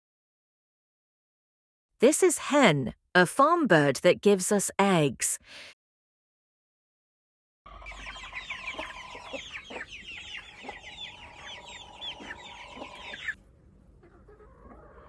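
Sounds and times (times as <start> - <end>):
hens clucking: 7.7 - 13.4, 14.0 - 15.0.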